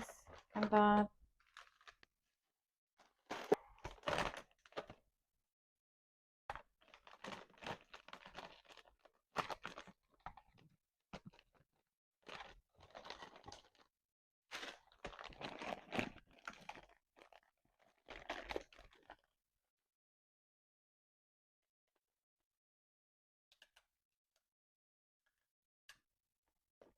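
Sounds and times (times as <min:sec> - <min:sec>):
candy wrappers crinkling: 0:00.3 - 0:02.1, 0:06.8 - 0:10.3, 0:12.3 - 0:13.9, 0:14.6 - 0:19.2.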